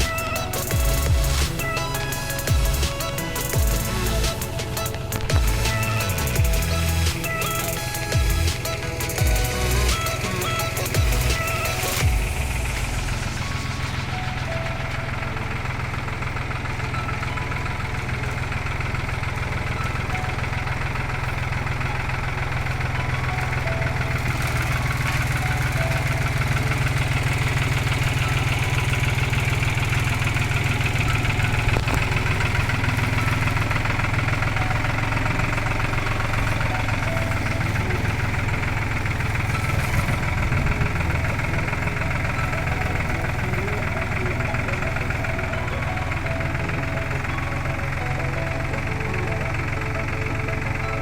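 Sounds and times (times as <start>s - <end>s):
engine idling: 0.0s - 51.0s.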